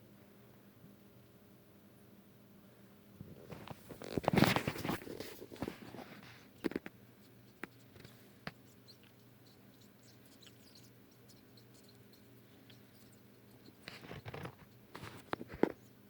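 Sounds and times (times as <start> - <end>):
faint clicking and scratching: 3.2 - 16.0.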